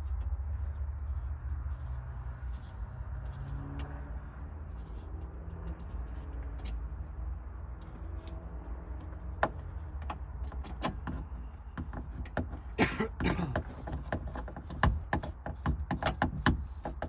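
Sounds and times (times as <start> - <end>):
hand tools clicking and knocking: 7.7 - 17.0.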